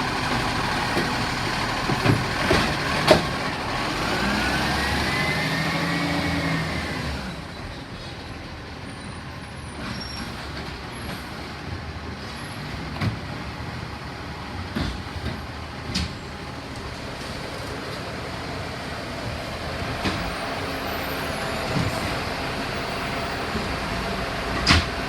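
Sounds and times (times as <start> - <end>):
garbage truck engine and hydraulics: 0.0 - 25.0
knocks and clunks: 0.3 - 3.5.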